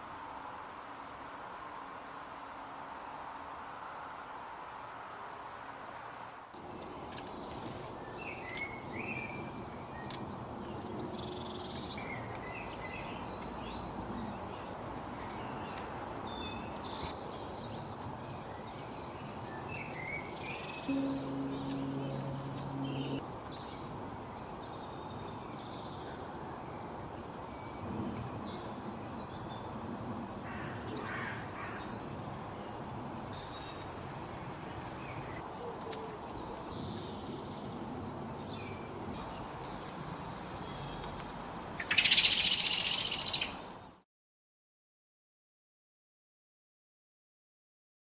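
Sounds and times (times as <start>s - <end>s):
outdoor background hiss: 0.0s - 44.0s
birds chirping and trilling: 17.8s - 23.8s, 41.8s - 43.6s.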